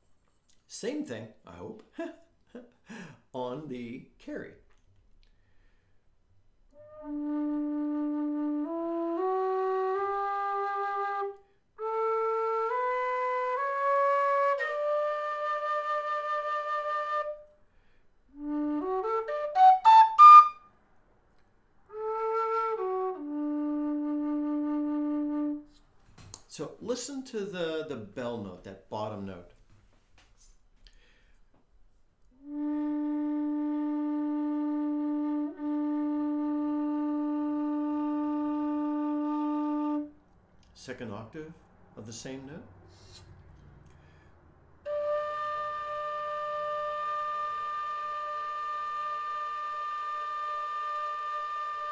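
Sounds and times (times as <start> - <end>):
whistle playing scales: 6.8 - 17.6, 18.3 - 20.7, 32.4 - 40.2, 44.9 - 51.9
low whistle held note: 42.9 - 44.2.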